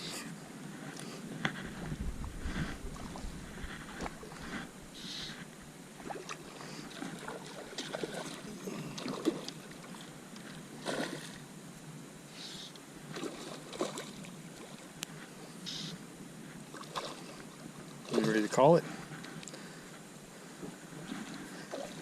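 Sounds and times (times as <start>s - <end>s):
water lapping around boat: 0.0s - 22.0s.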